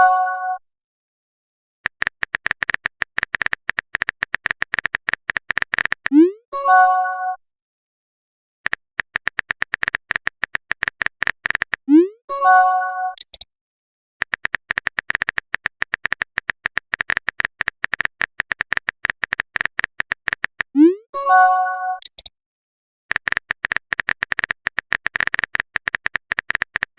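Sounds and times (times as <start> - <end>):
typing clicks: 1.9 - 6.2, 8.6 - 11.9, 13.2 - 13.5, 14.2 - 20.8, 22.0 - 22.3, 23.1 - 26.9.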